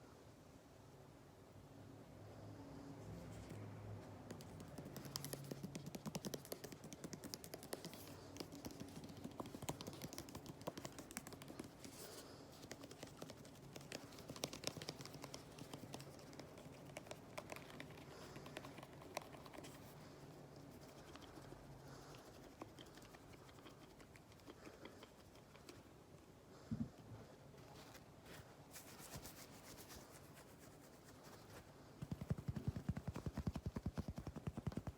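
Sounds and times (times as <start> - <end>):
fingers tapping on objects: 4.2 - 11.9, 32.0 - 34.9.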